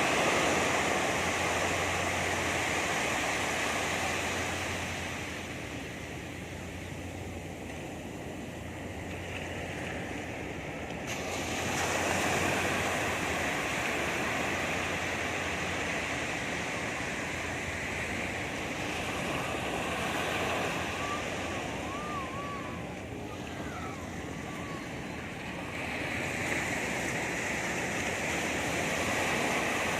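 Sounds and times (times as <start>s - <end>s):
surf washing onto beach: 0.0s - 29.9s
faint wavering whistle-like tone: 20.5s - 25.3s.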